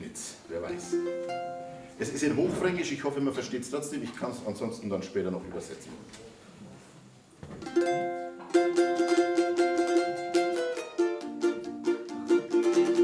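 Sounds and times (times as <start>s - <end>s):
picked acoustic string instrument: 0.0s - 3.4s, 7.4s - 13.0s.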